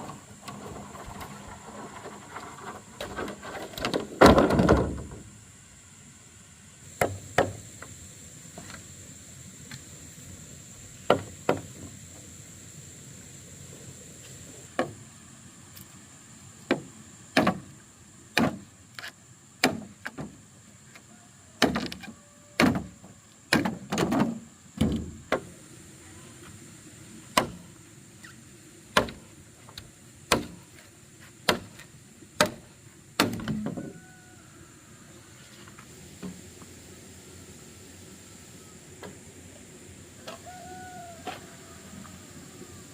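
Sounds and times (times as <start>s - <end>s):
sharp chopping knocks: 16.7s - 17.7s, 18.4s - 18.6s, 19.6s - 20.3s, 30.3s - 30.6s, 33.2s - 33.6s.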